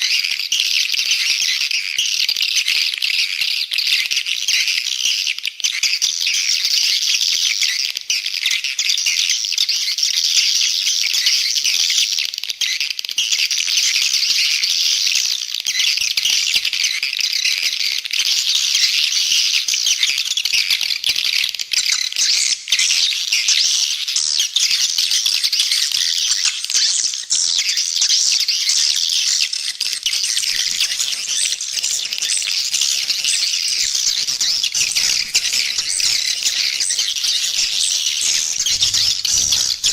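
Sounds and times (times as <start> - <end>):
swiftlets twittering: 30.0 - 39.9.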